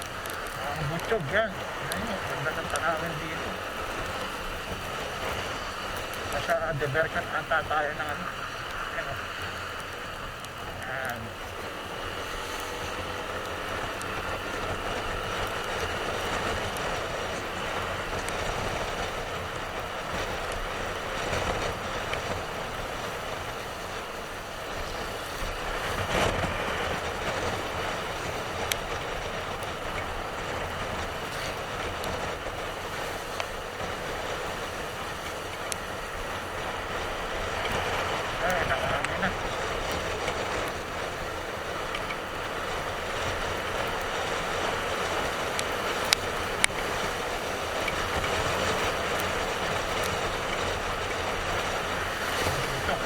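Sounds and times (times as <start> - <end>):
motorcycle engine drone: 0.0 - 53.0
road noise: 0.0 - 53.0
wind noise: 0.0 - 53.0.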